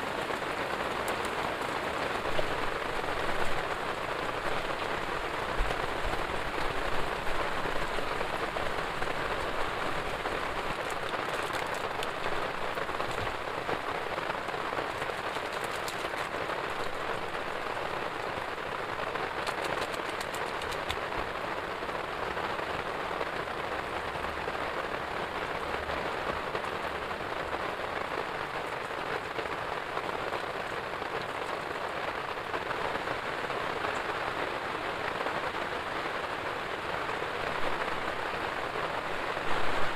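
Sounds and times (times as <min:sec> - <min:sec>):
heavy rain falling: 0:00.0 - 0:39.9
sharp raindrop ticks: 0:00.7 - 0:01.6, 0:02.2 - 0:21.4.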